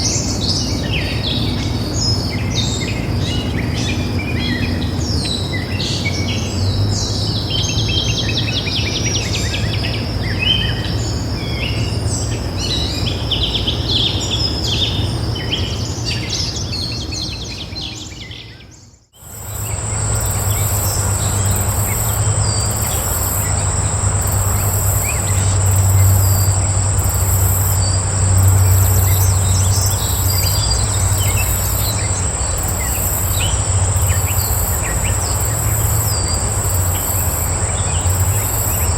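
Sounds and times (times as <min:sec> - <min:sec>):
small birds chirping: 0:04.3 - 0:38.9
low background rumble: 0:19.2 - 0:38.9
pulsing insect trill: 0:19.2 - 0:38.9.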